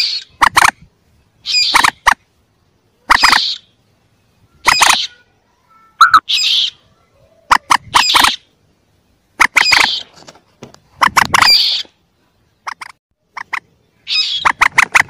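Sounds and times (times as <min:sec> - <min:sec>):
moorhen calls: 0:01.4 - 0:02.2, 0:03.0 - 0:03.8, 0:04.4 - 0:05.3, 0:05.9 - 0:08.5, 0:09.4 - 0:10.2, 0:11.0 - 0:11.9, 0:12.6 - 0:15.0.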